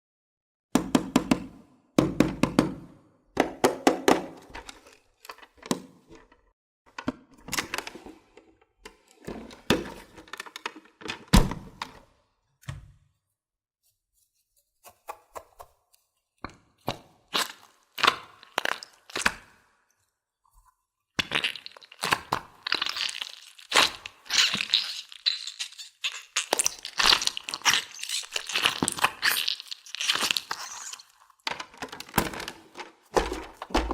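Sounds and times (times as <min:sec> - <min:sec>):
packaging crinkling and tearing: 0:21.4 - 0:33.9
hard plastic pieces clattering: 0:31.4 - 0:33.9.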